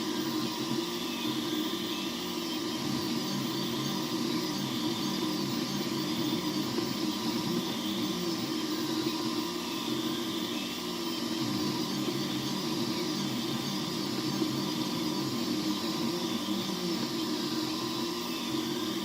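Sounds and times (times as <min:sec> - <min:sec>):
fan whirring: 0:00.0 - 0:19.0
stepper motors humming: 0:00.0 - 0:19.0.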